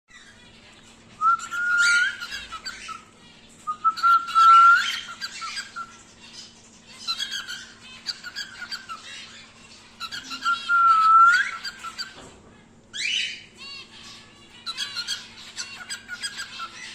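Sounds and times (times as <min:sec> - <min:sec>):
bird scratchy chatter: 0:00.1 - 0:16.9
cockatiel whistling: 0:01.2 - 0:03.0, 0:03.7 - 0:06.0, 0:10.0 - 0:12.1.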